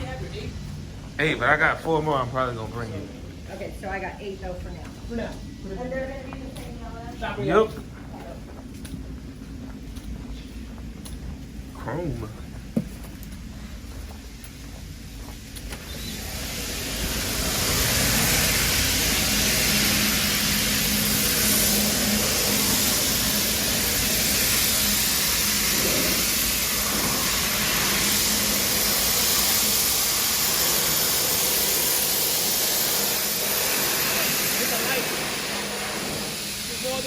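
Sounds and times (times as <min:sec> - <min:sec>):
sandblasting nozzle hissing: 0:14.9 - 0:37.0.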